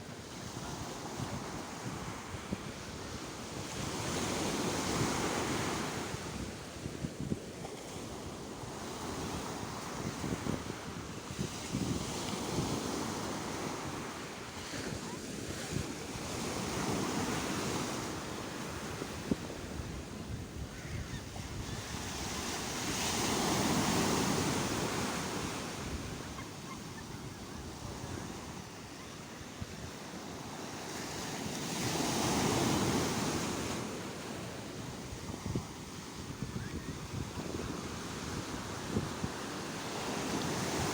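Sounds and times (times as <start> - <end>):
wind buffeting microphone: 1.1 - 14.1, 18.7 - 28.7, 34.9 - 39.4
sea waves breaking: 11.7 - 36.1.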